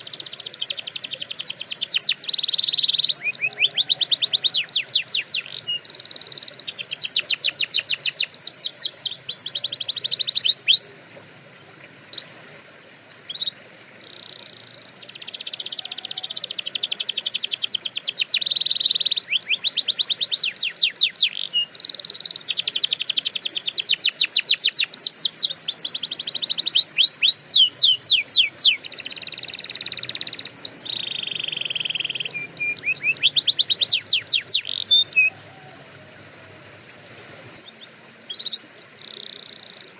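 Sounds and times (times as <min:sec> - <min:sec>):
canary singing trills: 0:00.0 - 0:11.0, 0:13.1 - 0:35.8, 0:37.6 - 0:39.9.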